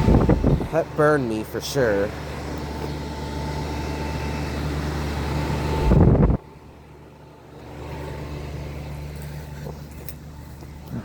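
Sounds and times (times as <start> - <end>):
air conditioner humming: 0.0 - 11.0
loud rumble: 5.7 - 6.4.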